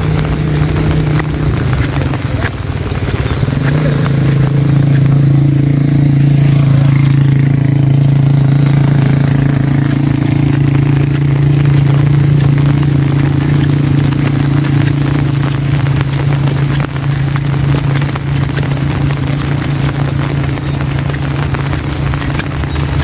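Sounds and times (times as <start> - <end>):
engine running low hum: 0.0 - 23.0
rain hissing: 0.0 - 23.0.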